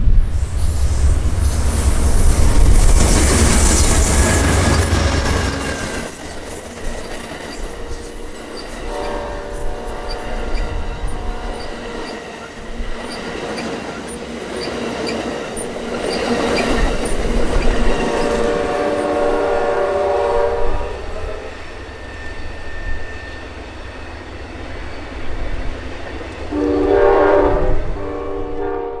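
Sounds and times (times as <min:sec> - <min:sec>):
train wheels rumbling and clattering: 0:00.0 - 0:29.0
train horn blasts: 0:08.7 - 0:11.9, 0:18.3 - 0:21.5, 0:26.5 - 0:29.0.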